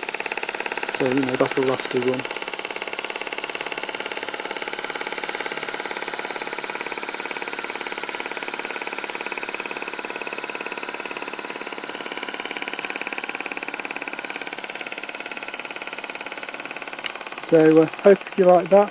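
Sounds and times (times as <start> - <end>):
steam engine exhaust beat: 0.0 - 18.9
steam hissing: 12.0 - 18.9.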